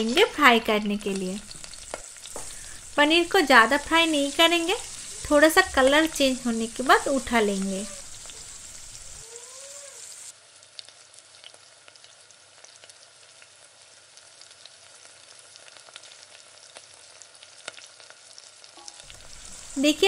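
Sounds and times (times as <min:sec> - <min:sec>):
oil popping and crackling: 0:00.0 - 0:09.3, 0:10.0 - 0:20.0
spatula turning food: 0:00.0 - 0:10.3, 0:19.1 - 0:20.0
cheese sizzling in hot oil: 0:00.0 - 0:20.0.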